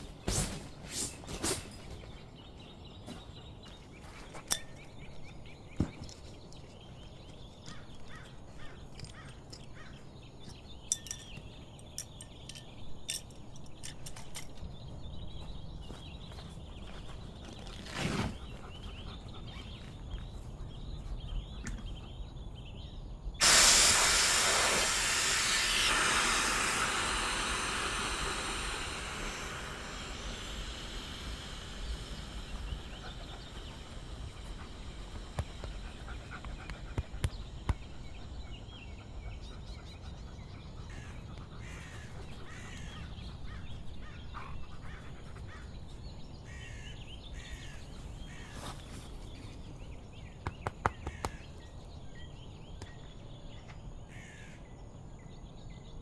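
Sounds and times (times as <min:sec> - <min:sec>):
loud hiss: 0:23.4 - 0:38.2.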